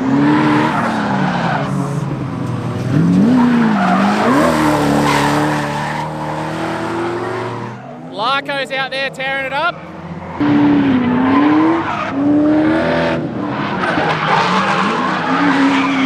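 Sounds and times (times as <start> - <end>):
car engine revving: 0.0 - 16.0
tyres squealing: 0.4 - 10.4.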